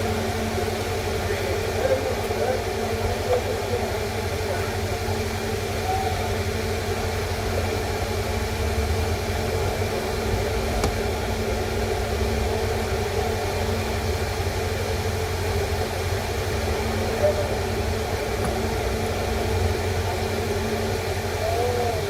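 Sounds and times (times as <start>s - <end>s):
low hum and hiss: 0.0s - 22.0s.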